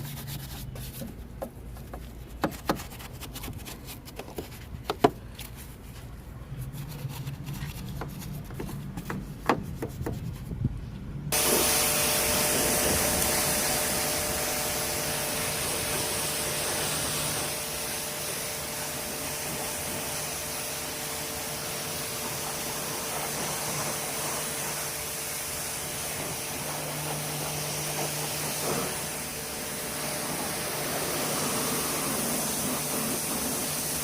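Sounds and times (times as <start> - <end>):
scrubbing and rubbing: 0.0 - 10.6, 26.1 - 29.1
tool whine: 11.3 - 18.6
pressurised tool hissing: 11.4 - 34.0.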